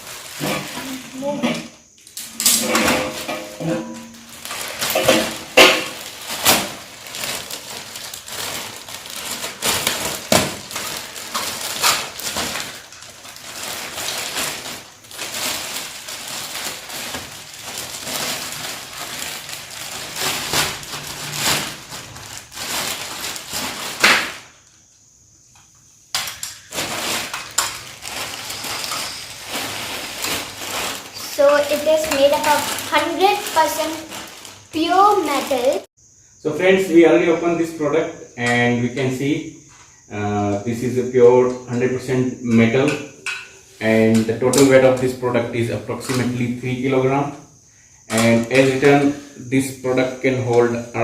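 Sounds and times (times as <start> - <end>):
packaging rustling and crinkling: 0.0 - 1.1, 2.6 - 24.6, 26.2 - 35.9.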